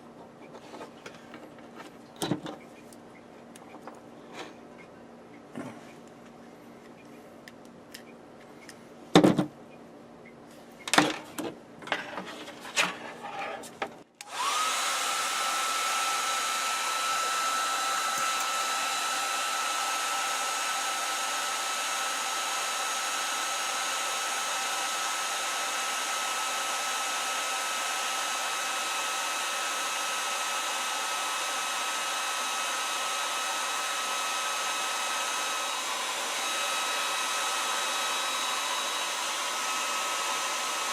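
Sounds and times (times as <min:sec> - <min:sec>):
hair dryer running: 0:14.2 - 0:40.9.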